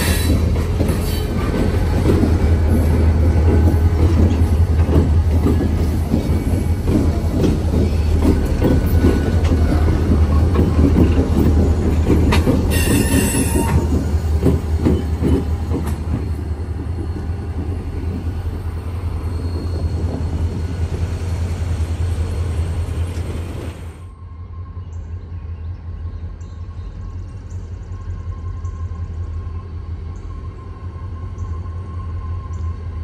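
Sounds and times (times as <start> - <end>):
wheels clattering over rail joints: 0.0 - 18.3
freight train rumbling: 0.0 - 33.0
high wheel squeal: 12.7 - 14.0, 18.9 - 21.2.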